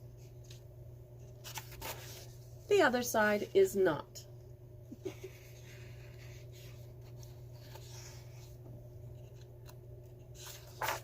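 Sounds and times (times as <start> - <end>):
low electrical hum: 0.0 - 11.0
paper pages rustling: 0.4 - 2.5, 5.6 - 11.0.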